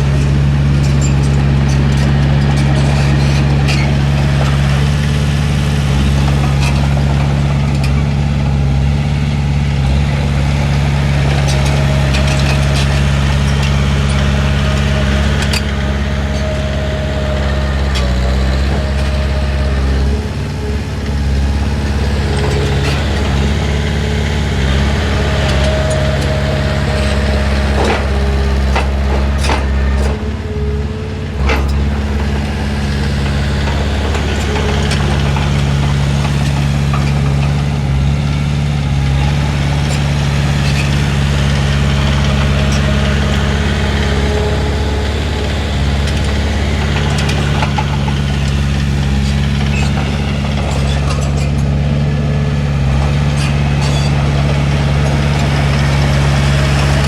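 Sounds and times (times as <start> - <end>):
heavy diesel engine running: 0.0 - 57.0
thin squeals: 11.4 - 30.9
metallic clanks: 52.8 - 57.0.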